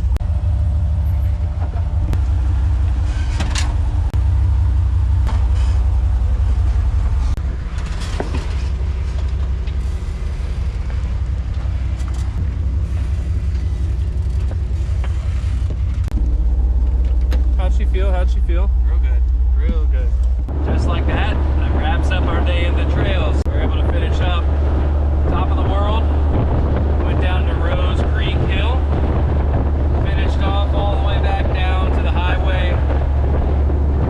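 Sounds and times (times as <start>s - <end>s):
off-road vehicle engine rumble: 0.0s - 34.0s.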